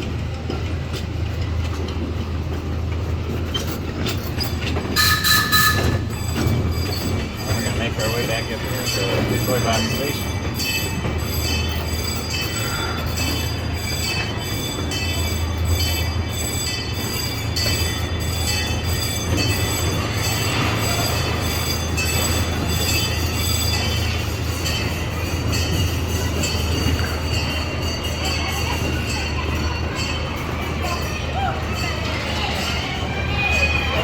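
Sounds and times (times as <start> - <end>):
train rumbling on track: 0.0 - 34.0
high-pitched wheel squeal: 3.6 - 24.2.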